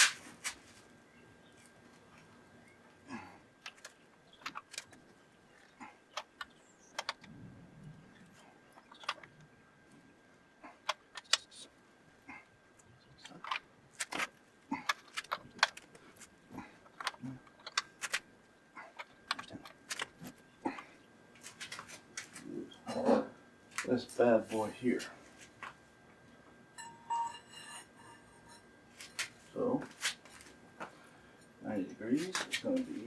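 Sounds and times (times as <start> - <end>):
metal tools clinking: 26.8 - 29.3.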